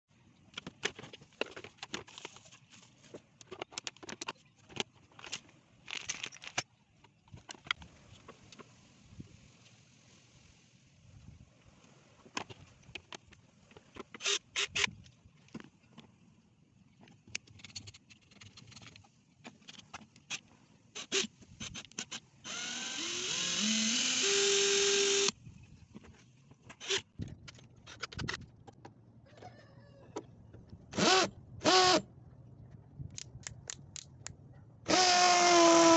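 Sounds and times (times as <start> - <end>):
hammer drill motor whine: 22.4 - 25.3, 34.9 - 35.9.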